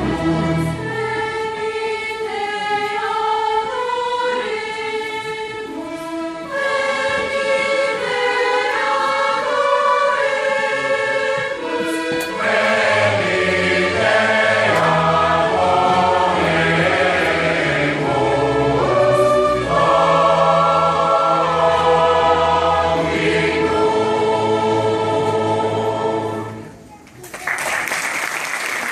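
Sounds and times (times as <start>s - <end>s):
choir singing: 0.0s - 26.8s.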